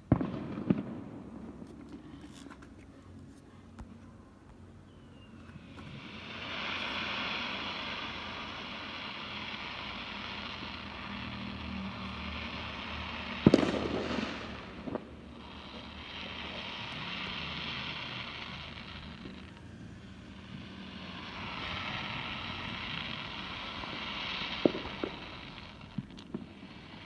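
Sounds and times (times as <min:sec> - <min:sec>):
loud firework bang: 0:00.0 - 0:01.6, 0:13.4 - 0:15.4
fireworks crackling hiss: 0:00.0 - 0:27.0.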